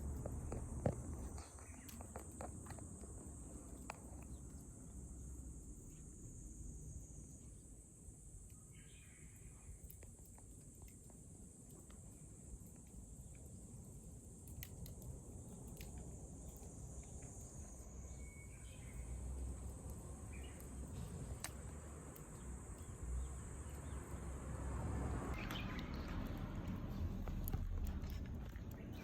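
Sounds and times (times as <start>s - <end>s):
campfire crackles: 0.0s - 6.4s, 7.4s - 29.0s
insects trilling: 0.0s - 29.0s
low rumble: 19.3s - 29.0s.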